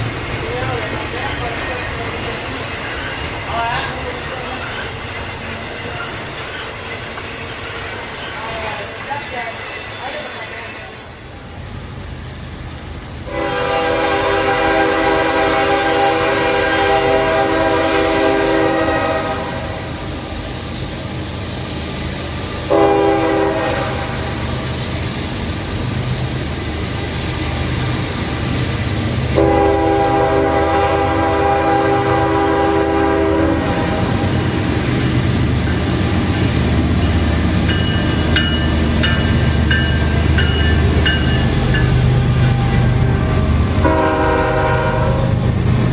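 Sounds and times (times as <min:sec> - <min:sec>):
train wheels rumbling on rails: 0:00.0 - 0:45.9
locomotive air horn blasts: 0:13.3 - 0:19.9, 0:22.7 - 0:24.4, 0:29.4 - 0:34.3, 0:42.4 - 0:45.4.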